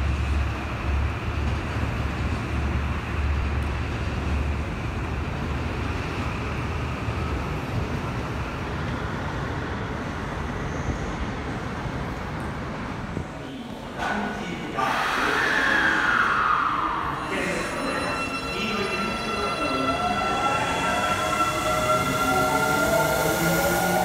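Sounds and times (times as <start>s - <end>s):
train wheels rumbling on rails: 0.0s - 13.4s.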